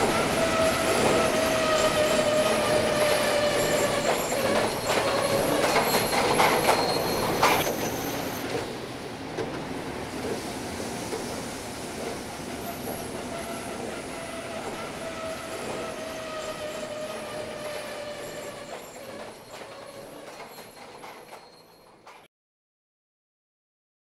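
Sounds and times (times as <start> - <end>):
wheels squealing on rail: 0.0 - 8.8, 12.4 - 22.3.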